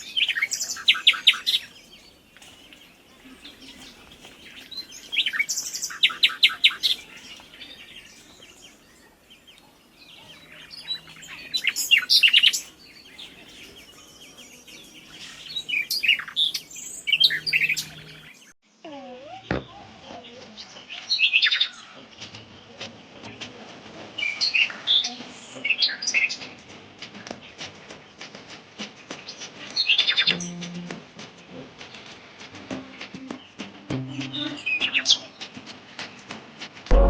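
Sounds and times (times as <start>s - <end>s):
bird chirping: 0.0s - 18.6s.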